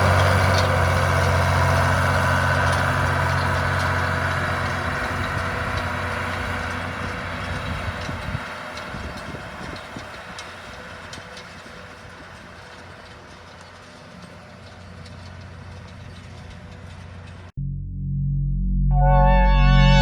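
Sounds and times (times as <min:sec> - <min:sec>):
tractor diesel engine running: 0:00.0 - 0:13.2.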